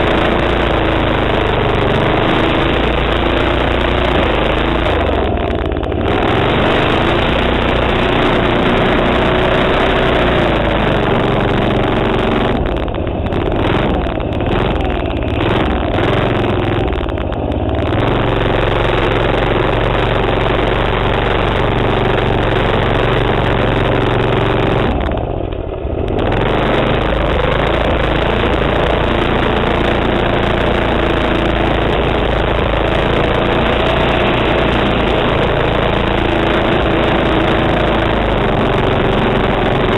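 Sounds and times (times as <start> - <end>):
minibike engine running hard: 0.0 - 39.9.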